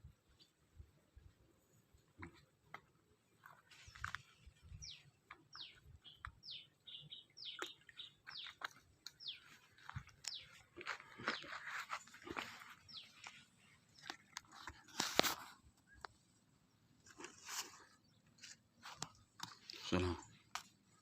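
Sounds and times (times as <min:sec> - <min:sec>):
rustle: 0:09.6 - 0:15.7.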